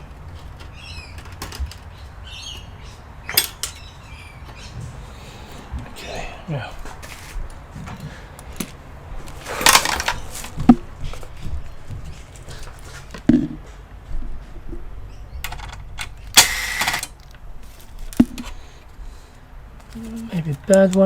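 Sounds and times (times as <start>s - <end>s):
light knocks of parts: 0.0s - 6.0s, 6.8s - 14.8s, 19.8s - 21.0s
scraping rustles: 0.0s - 6.0s, 6.8s - 14.8s, 17.2s - 21.0s.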